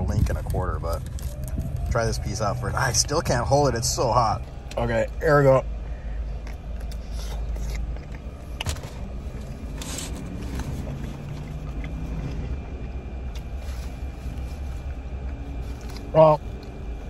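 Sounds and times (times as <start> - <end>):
low rumble in car cabin: 0.0 - 17.0
chewing and mouth sounds: 6.1 - 17.0.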